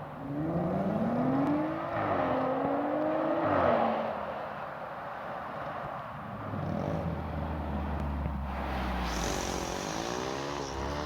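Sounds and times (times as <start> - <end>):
hiss: 8.6 - 11.0.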